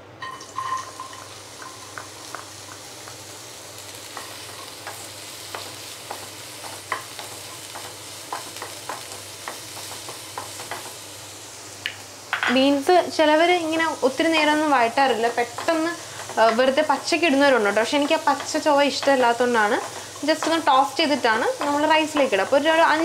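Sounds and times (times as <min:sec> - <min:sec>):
green beans sizzling in hot oil: 0:00.2 - 0:23.0
wooden spatula scraping a pan: 0:15.3 - 0:22.8.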